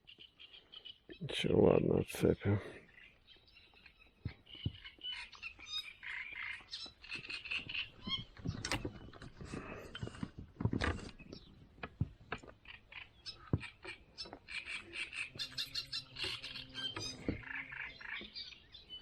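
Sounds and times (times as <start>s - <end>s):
small birds chirping: 0.0s - 19.0s
clicks and knocks handling fish: 6.1s - 15.3s.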